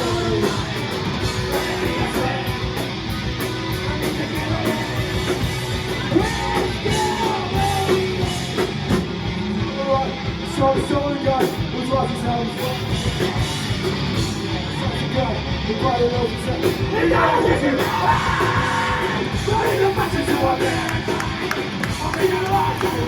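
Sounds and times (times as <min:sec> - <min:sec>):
shouted vocals: 0:00.0 - 0:08.6, 0:16.3 - 0:23.0
heavy rock band playing: 0:00.0 - 0:23.0.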